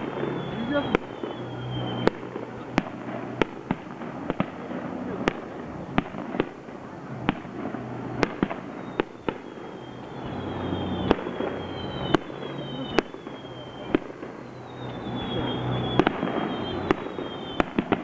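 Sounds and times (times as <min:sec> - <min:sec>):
high falling whistle: 0:00.0 - 0:02.2, 0:08.8 - 0:17.8
fireworks bangs: 0:00.0 - 0:18.0.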